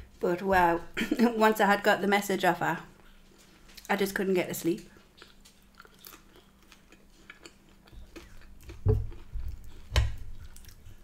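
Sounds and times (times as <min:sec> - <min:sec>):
chewing chips: 0:04.9 - 0:11.0.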